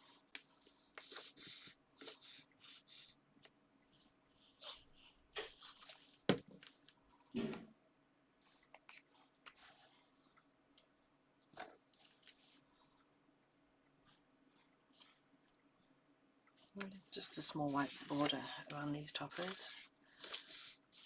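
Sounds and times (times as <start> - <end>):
paper rustling and sliding: 17.6 - 18.6.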